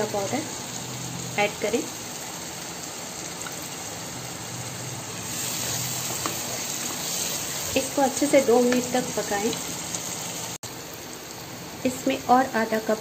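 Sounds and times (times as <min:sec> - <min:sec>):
gravy sizzling and bubbling in pan: 0:00.0 - 0:13.0
spatula stirring: 0:05.2 - 0:07.9.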